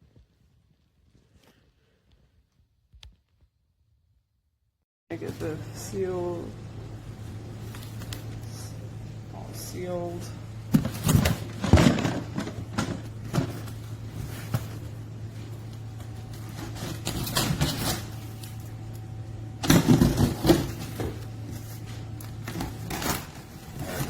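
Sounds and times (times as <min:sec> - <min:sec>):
steady low hum: 0:05.1 - 0:24.0
package rustling and scraping: 0:10.7 - 0:18.8.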